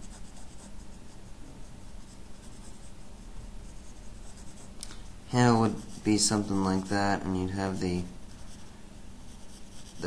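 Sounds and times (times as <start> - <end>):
pencil scratching on paper: 0.0 - 4.8, 5.4 - 10.0.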